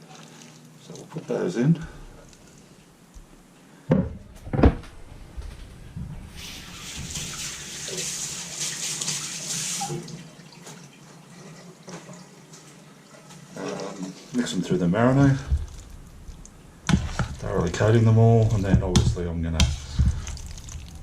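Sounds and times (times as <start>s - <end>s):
kitchen tap running: 6.4s - 21.0s
dull thuds: 16.8s - 20.5s.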